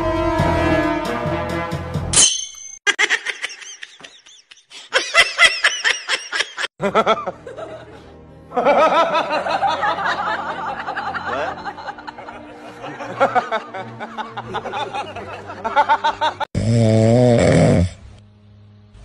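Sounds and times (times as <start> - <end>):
background music: 0.0 - 2.4, 6.8 - 19.0
high-pitched laughter and giggling: 2.9 - 16.5.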